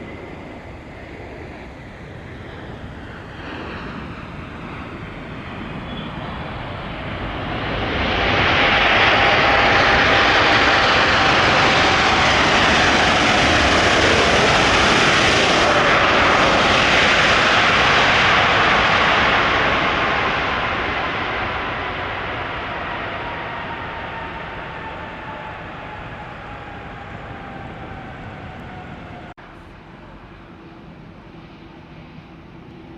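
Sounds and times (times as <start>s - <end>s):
jet engines passing: 0.0s - 32.9s.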